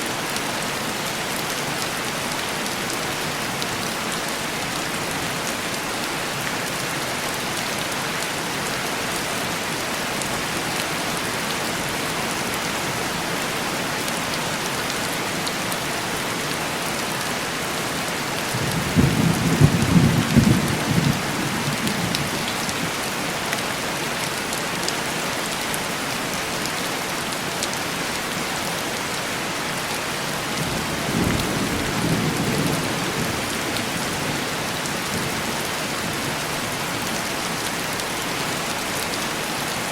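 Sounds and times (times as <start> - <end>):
heavy rain: 0.0 - 39.9
thunder rumbling: 18.5 - 22.5.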